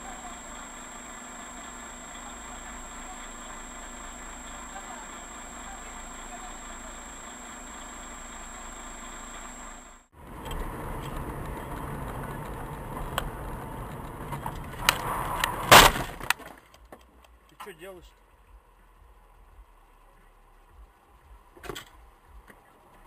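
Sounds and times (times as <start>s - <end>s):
thin high whine: 0.0s - 10.1s
car engine and road noise: 0.0s - 23.0s
loud bang: 15.6s - 16.3s.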